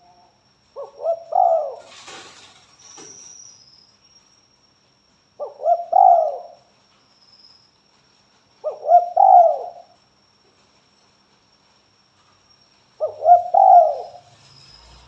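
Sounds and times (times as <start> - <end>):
dove cooing: 0.8 - 2.1, 5.4 - 6.6, 8.6 - 10.0, 13.0 - 14.3.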